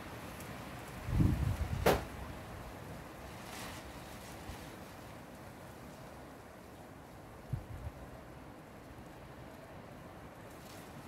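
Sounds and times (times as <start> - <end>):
wind buffeting microphone: 0.9 - 2.1.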